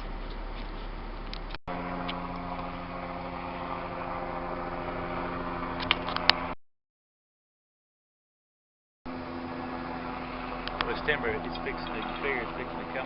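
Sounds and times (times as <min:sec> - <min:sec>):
engine idling: 0:00.0 - 0:06.6, 0:09.1 - 0:13.0.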